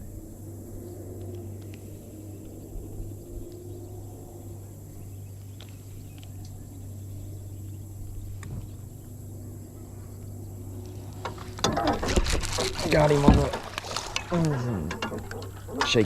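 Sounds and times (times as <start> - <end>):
steady low hum: 0.0 - 16.0
faint sharp ticks: 1.2 - 2.6.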